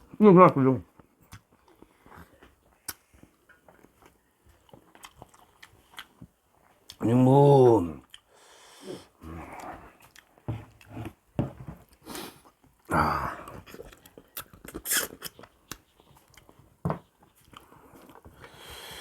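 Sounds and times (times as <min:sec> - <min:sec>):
chewing and lip-smacking: 0:01.0 - 0:07.0, 0:08.0 - 0:08.3, 0:09.6 - 0:10.4, 0:13.5 - 0:18.4.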